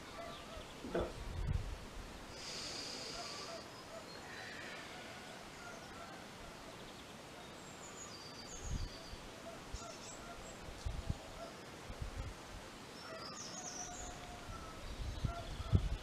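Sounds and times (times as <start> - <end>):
background hiss: 0.0 - 16.0
faint bird chirps: 2.4 - 11.6.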